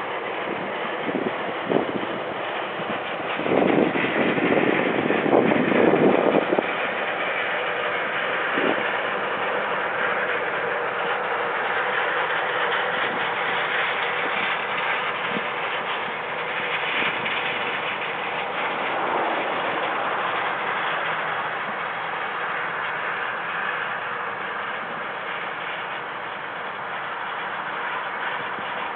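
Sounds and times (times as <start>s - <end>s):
harvest machinery running: 0.0s - 28.9s.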